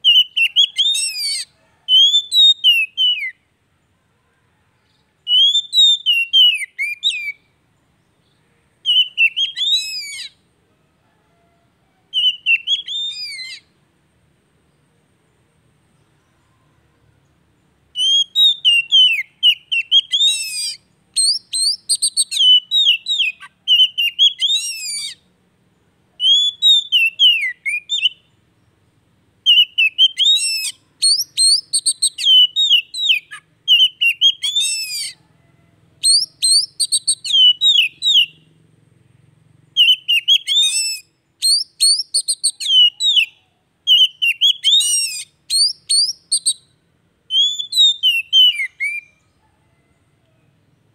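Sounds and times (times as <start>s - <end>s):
bird singing whistles and chirps: 0.0s - 3.5s, 4.9s - 7.5s, 8.2s - 10.4s, 12.1s - 13.7s, 17.9s - 25.3s, 26.2s - 28.4s, 29.4s - 35.2s, 36.0s - 38.6s, 39.7s - 49.3s.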